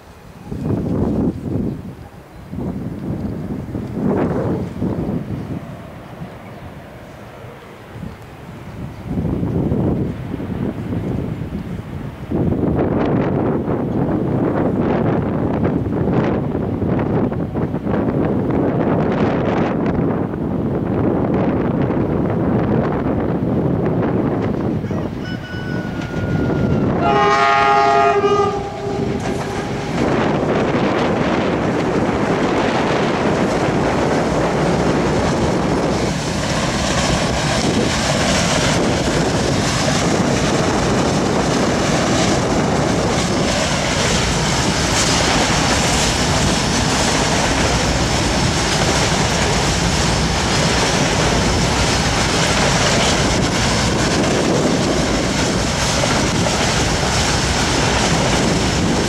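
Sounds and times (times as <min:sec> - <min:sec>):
freight train rumbling and clacking: 0:00.0 - 0:59.0
locomotive horn chord: 0:25.2 - 0:30.2.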